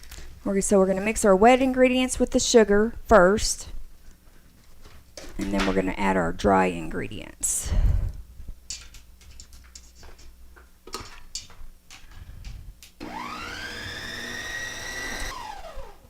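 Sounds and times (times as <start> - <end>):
electric mixer whirring: 13.0 - 16.0.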